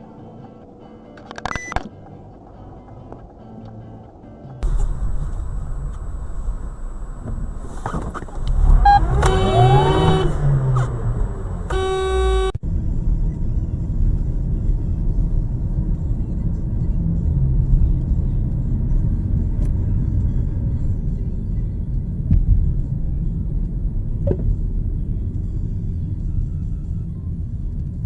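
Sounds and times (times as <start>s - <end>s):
car driving rumble: 0.3s - 28.0s
steady electronic tone: 4.6s - 12.6s.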